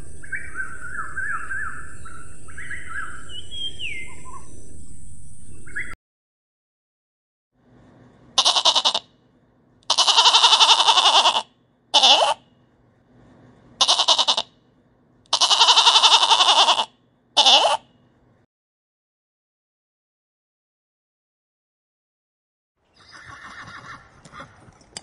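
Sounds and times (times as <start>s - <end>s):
lambs bleating: 8.4s - 9.0s, 9.9s - 12.4s, 13.8s - 14.5s, 15.3s - 17.8s.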